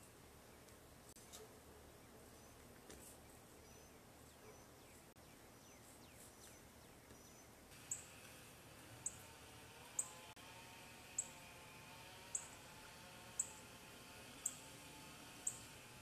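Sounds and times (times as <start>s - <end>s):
faint bird chirps: 1.9s - 8.1s.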